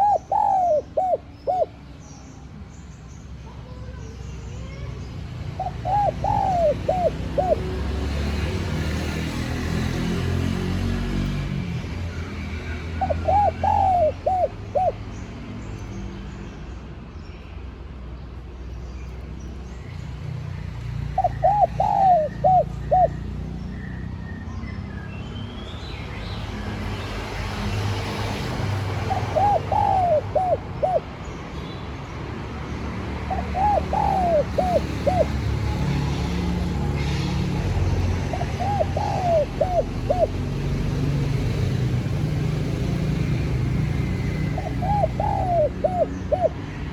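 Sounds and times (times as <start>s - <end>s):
dove cooing: 0.0s - 1.8s, 5.6s - 7.8s, 13.0s - 15.0s, 21.1s - 23.3s, 28.7s - 31.2s, 33.3s - 35.9s, 38.2s - 40.6s, 44.0s - 46.8s.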